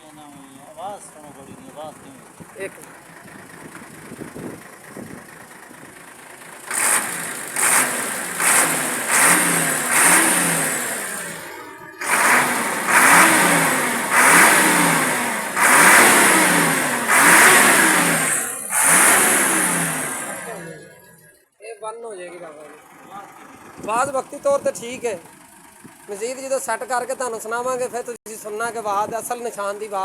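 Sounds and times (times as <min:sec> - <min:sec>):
diesel truck engine revving: 0:00.1 - 0:21.4.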